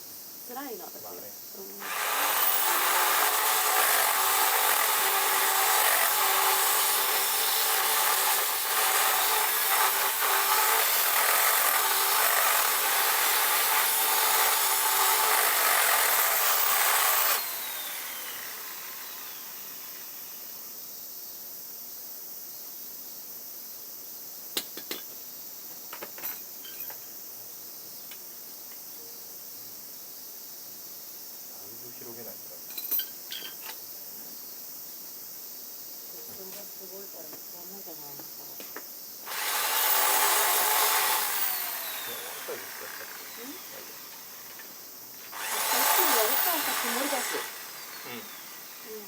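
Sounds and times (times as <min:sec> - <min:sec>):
power tool running and spinning down: 0:01.8 - 0:20.5, 0:39.3 - 0:49.0.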